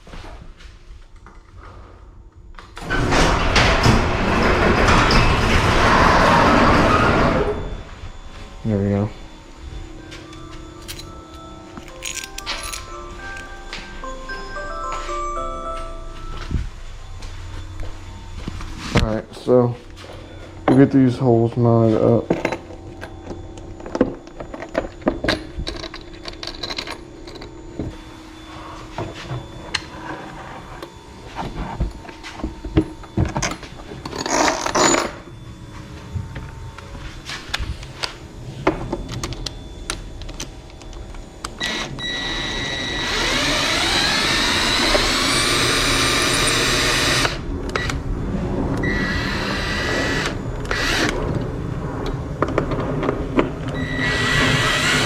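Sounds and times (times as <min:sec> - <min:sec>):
motor whine: 0:02.4 - 0:55.0
bolts and tools clicking: 0:10.3 - 0:13.5.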